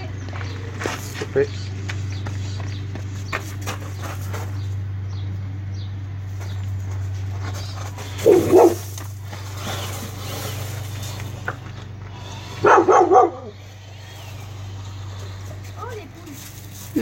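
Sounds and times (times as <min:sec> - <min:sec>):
steady low hum: 0:00.0 - 0:17.0
dog barking: 0:08.2 - 0:08.9, 0:12.6 - 0:13.6.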